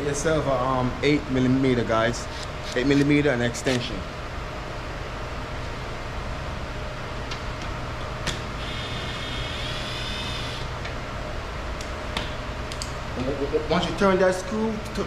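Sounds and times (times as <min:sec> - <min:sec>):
small motor whining: 0:08.6 - 0:10.7.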